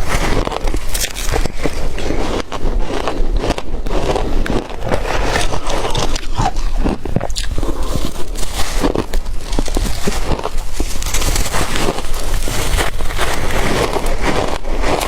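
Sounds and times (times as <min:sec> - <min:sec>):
ice being chewed: 0:00.0 - 0:15.0.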